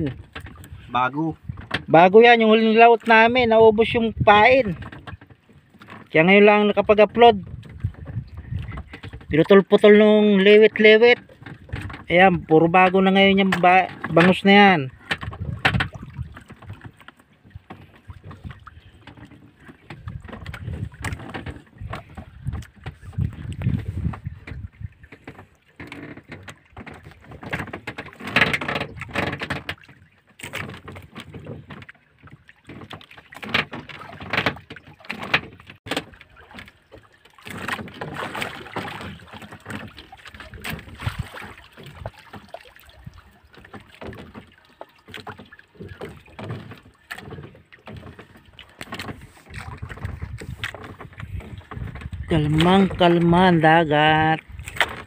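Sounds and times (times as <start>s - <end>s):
water sloshing against a boat hull: 0.0s - 55.0s
fishing line knocks and rustles: 15.0s - 53.0s.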